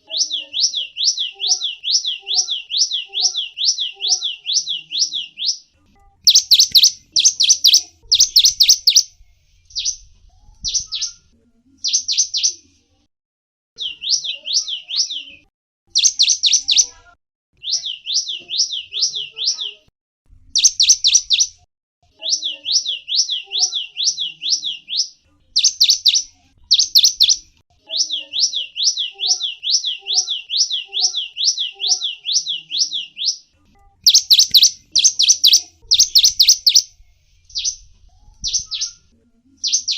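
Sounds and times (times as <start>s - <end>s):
songbird whistling: 6.3s - 9.1s, 13.8s - 16.9s, 20.6s - 21.6s, 22.2s - 36.9s, 38.4s - 39.9s.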